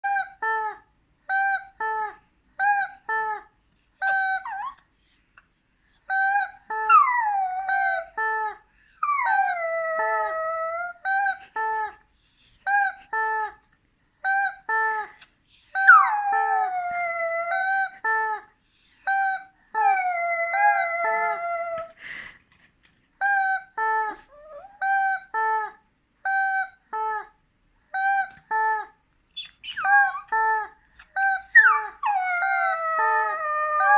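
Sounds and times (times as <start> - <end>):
dog howling: 6.9 - 8.1, 9.0 - 11.0, 15.8 - 17.9, 19.8 - 22.0, 31.5 - 33.9
short squawks: 29.3 - 32.7.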